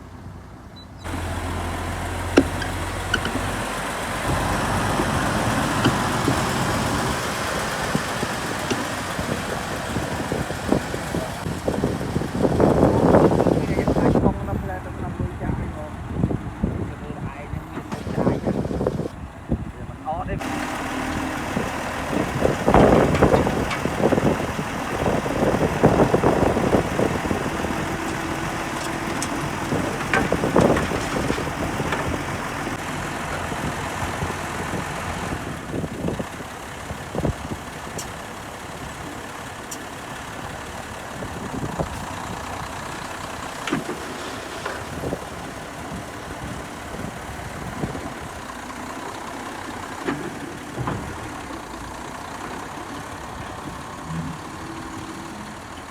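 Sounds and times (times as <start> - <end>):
diesel machinery engine: 0.0 - 55.9
clattering and knocks: 2.0 - 11.4, 20.4 - 33.5, 49.8 - 52.9.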